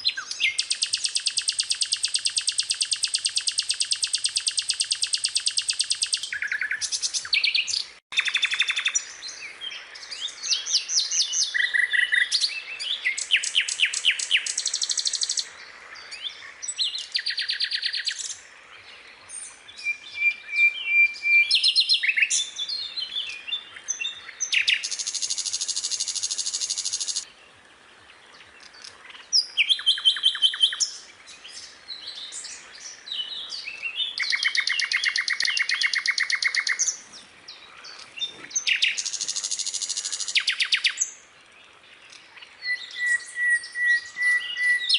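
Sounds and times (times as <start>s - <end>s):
skylark singing: 0.0s - 8.8s.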